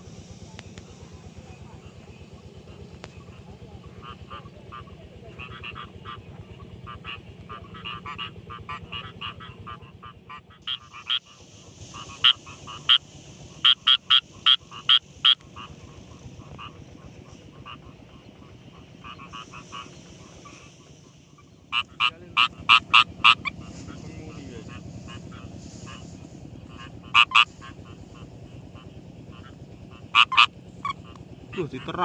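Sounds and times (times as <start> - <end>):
chorus of frogs croaking: 0.0 - 32.0
loud sharp croaks of close frog: 3.2 - 6.2, 6.8 - 23.7, 26.7 - 32.0.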